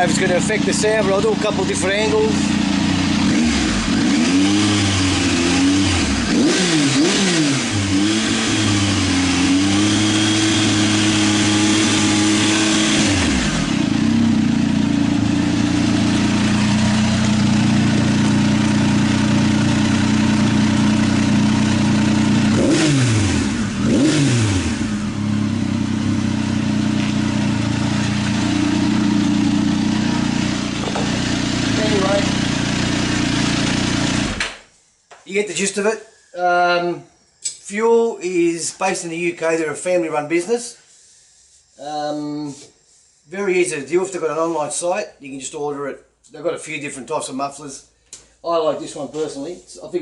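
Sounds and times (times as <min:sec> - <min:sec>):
motorcycle engine revving: 0:00.0 - 0:34.8.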